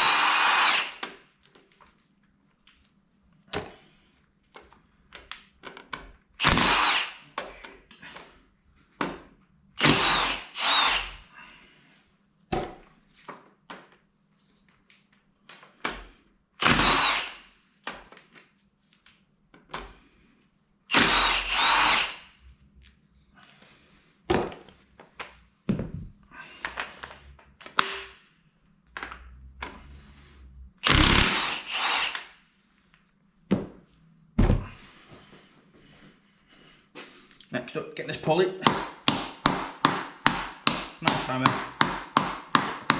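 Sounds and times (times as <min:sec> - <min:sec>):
power tool bursts: 0:00.0 - 0:01.0, 0:06.4 - 0:07.2, 0:09.8 - 0:11.2, 0:16.6 - 0:17.4, 0:20.9 - 0:22.3, 0:30.8 - 0:32.4.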